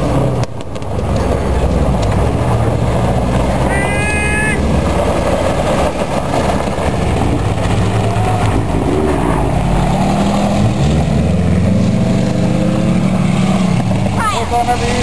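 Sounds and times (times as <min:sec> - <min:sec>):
car engine revving hard: 0:04.5 - 0:15.0
tyres spinning on gravel: 0:04.6 - 0:10.1.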